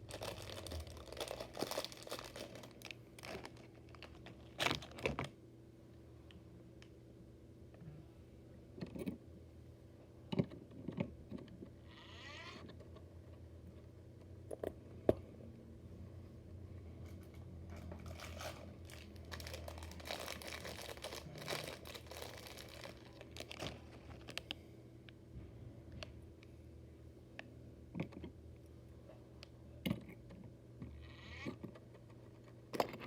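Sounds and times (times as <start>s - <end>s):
crinkly rustling: 0.0s - 5.2s, 17.7s - 24.6s.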